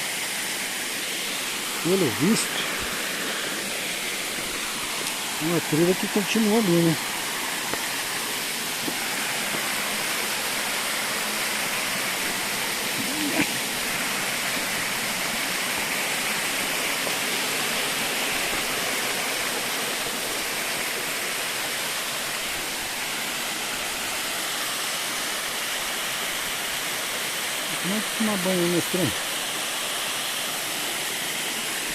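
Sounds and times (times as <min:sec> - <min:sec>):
waterfall rushing: 0:00.0 - 0:31.9
brief vocal sound: 0:13.0 - 0:13.6.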